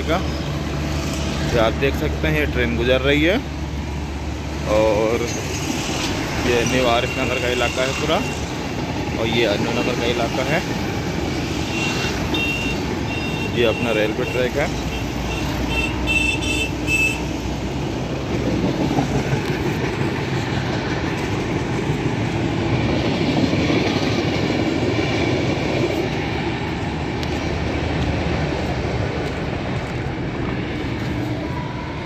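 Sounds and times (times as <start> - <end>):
train coaches running past: 0.0 - 32.0.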